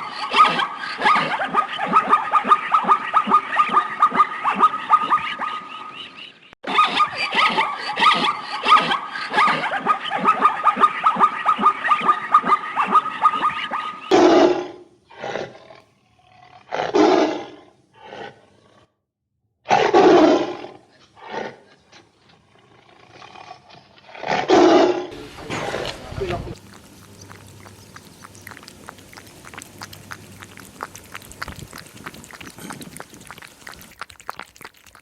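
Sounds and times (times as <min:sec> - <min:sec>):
rapid chattering pulses: 0:26.0 - 0:35.0.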